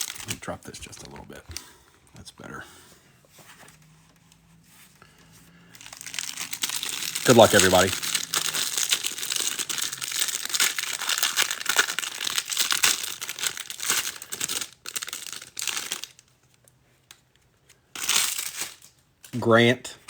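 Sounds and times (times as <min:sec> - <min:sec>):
plastic wrapping crinkling: 0:00.0 - 0:01.6, 0:05.1 - 0:17.4, 0:18.0 - 0:19.3.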